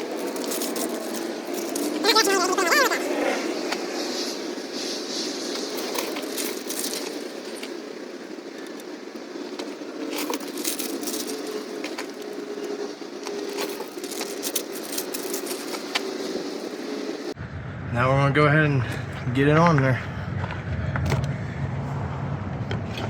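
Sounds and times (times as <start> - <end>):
gaskets clicking and rattling: 0.0 - 2.4, 5.5 - 16.4
steady background hum: 0.0 - 23.0.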